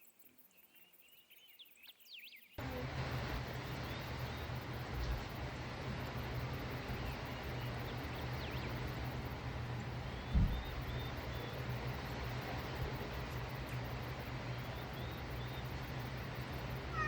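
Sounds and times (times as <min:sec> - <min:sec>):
faint bird chirps: 0:00.0 - 0:17.0
steady low hum: 0:02.6 - 0:17.0
dull thump: 0:10.3 - 0:10.8.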